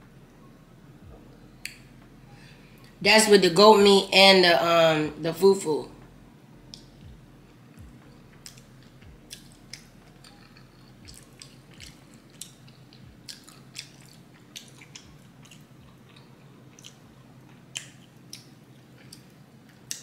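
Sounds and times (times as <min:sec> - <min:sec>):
faint steady hum: 0:00.0 - 0:20.0
wet chewing mouth sounds: 0:08.4 - 0:20.0.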